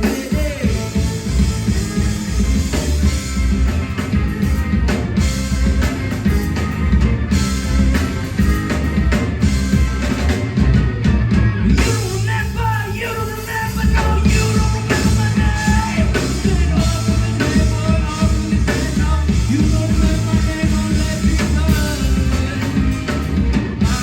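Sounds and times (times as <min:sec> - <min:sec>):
drum kit beat: 0:00.0 - 0:24.0
live rock band playing: 0:00.0 - 0:24.0
person singing: 0:11.8 - 0:23.2.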